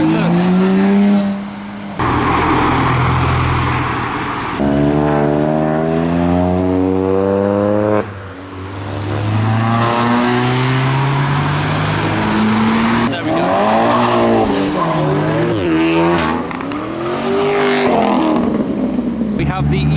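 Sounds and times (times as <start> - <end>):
engine revving: 0.0 - 18.6
rough noisy exhaust: 2.0 - 6.2.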